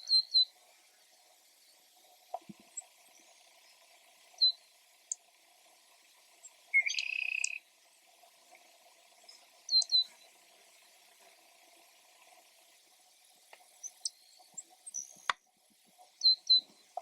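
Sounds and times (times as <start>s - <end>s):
bird high chirps: 0.0s - 0.5s, 4.4s - 4.6s, 6.7s - 7.7s, 9.3s - 10.3s, 13.8s - 15.4s, 16.2s - 16.7s
bird buzzy trill: 0.0s - 0.6s, 2.7s - 5.2s, 6.4s - 7.7s, 9.2s - 10.4s, 16.2s - 16.9s.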